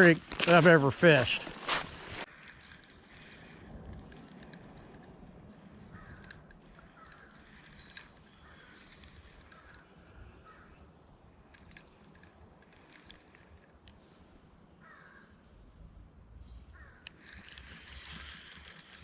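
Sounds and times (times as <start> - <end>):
light clicks: 0.0 - 10.8, 11.4 - 14.0
bird calling: 5.5 - 10.9, 16.4 - 19.0.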